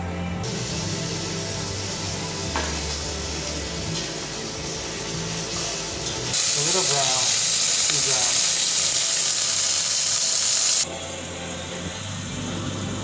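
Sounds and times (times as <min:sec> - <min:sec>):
soft background music: 0:00.0 - 0:13.0
fish fillets sizzling in hot oil: 0:00.5 - 0:10.8.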